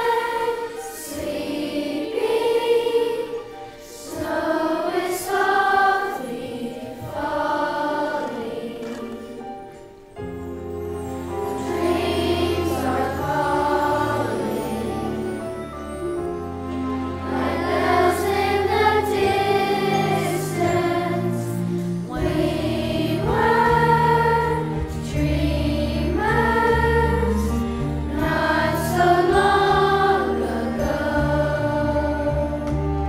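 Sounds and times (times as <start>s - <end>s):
school chorus singing: 0.0s - 9.9s, 11.4s - 15.9s, 16.7s - 33.0s.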